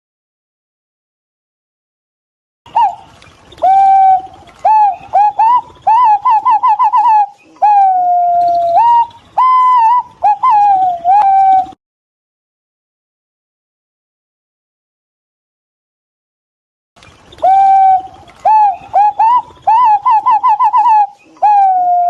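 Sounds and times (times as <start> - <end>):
pigeon whistled calls: 2.7 - 11.8, 17.3 - 22.0.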